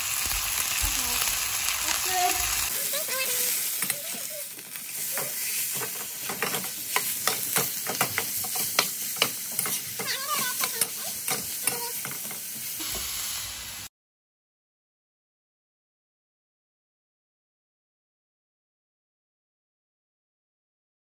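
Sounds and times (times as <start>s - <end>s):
meat sizzling in a wok: 0.0s - 13.9s
metal tongs clicking and scraping: 5.0s - 12.4s.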